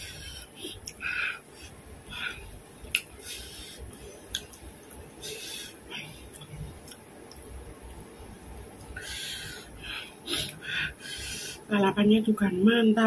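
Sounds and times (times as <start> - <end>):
sharp mouth clicks: 2.8 - 3.2, 4.3 - 4.7
person chewing meat: 2.8 - 3.5, 4.2 - 5.1
wet mouth smacks: 2.9 - 3.2, 4.3 - 4.6.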